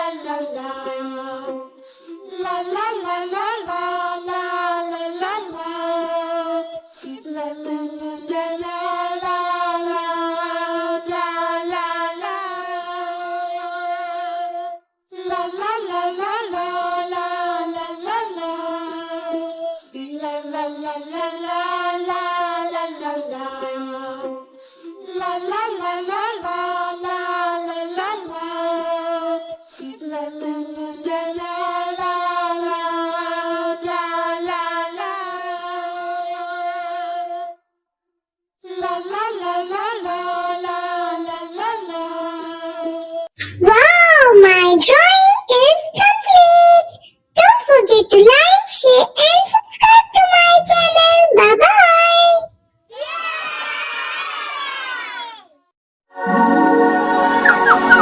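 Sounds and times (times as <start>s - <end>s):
child singing: 0.0s - 37.6s, 38.6s - 53.6s, 56.7s - 58.0s.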